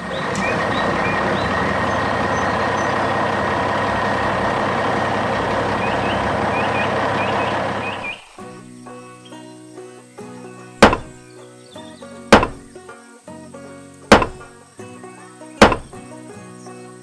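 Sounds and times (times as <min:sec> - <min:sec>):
heavy machine engine running: 0:00.0 - 0:08.3, 0:10.8 - 0:11.2, 0:12.4 - 0:12.7, 0:14.1 - 0:14.5, 0:15.6 - 0:16.0.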